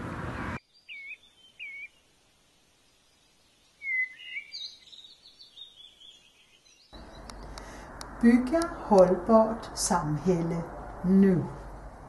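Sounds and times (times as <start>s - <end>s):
bird calling: 0.8s - 2.1s, 3.8s - 7.8s.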